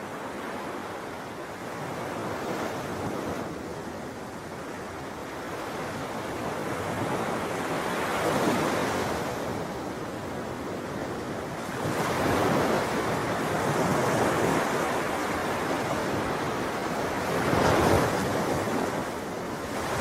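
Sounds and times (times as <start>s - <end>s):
sea waves washing on shore: 0.0s - 20.0s.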